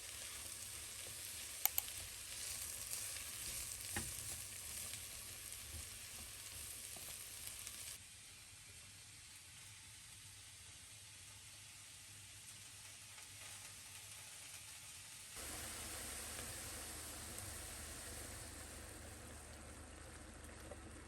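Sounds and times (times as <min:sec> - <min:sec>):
food sizzling in a frying pan: 0:00.0 - 0:21.0
light clicks: 0:01.6 - 0:01.9.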